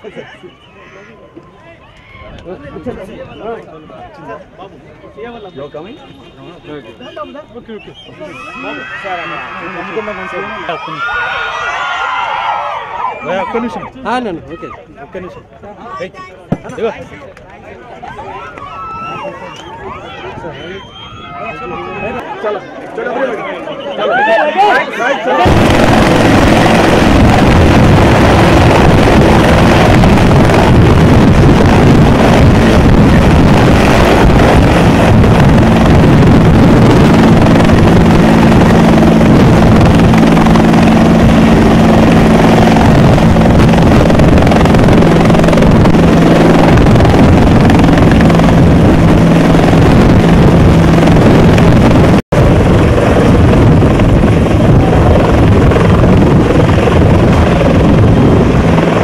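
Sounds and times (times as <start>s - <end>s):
helicopter engine and rotor: 25.3s - 59.0s.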